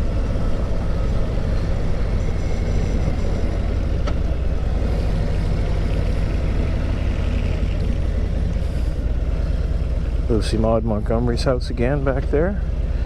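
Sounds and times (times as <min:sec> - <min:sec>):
motorcycle engine rumbling: 0:00.0 - 0:13.0
road noise: 0:00.0 - 0:13.0.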